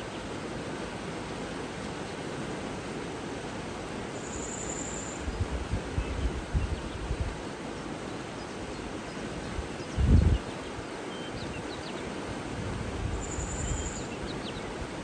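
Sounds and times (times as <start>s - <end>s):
steady background hiss: 0.0s - 15.0s
low rumbling wind gusts: 5.2s - 7.5s, 8.8s - 15.0s.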